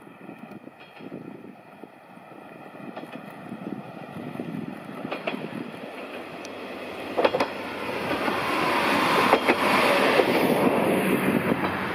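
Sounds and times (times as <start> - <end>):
diesel railcar passing: 0.0 - 11.9
wheel clacks over rail joints: 5.0 - 8.4, 9.0 - 10.8.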